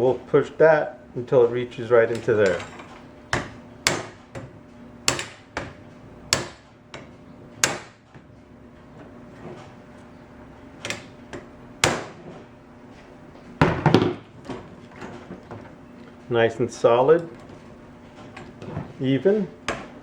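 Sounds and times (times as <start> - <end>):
hammer tapping on metal: 5.1 - 8.0.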